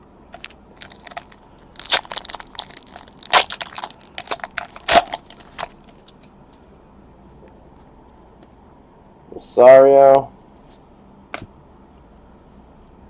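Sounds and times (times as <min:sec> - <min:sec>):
foil wrapper crinkling: 0:00.4 - 0:06.2.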